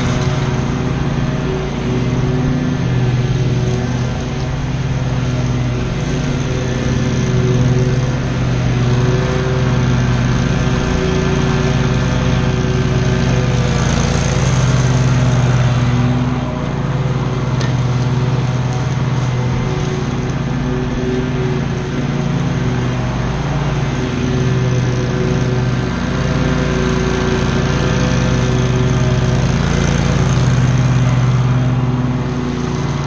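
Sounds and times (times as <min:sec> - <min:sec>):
lawn mower engine running: 0:00.0 - 0:33.0.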